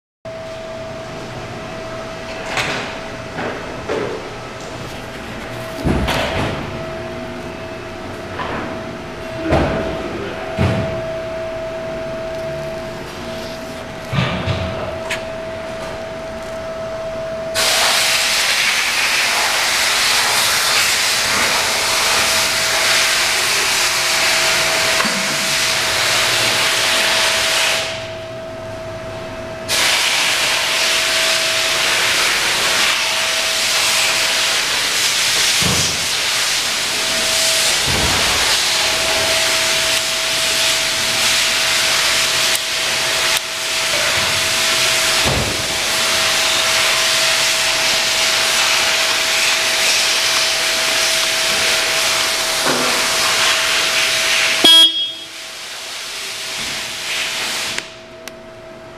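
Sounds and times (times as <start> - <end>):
loud steady hiss: 17.5 - 28.1, 29.7 - 58.0.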